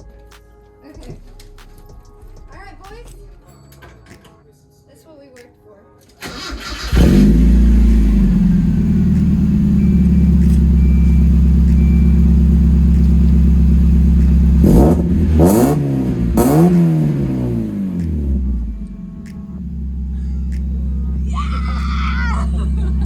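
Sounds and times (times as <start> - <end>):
car engine starting and revving: 6.2 - 21.3.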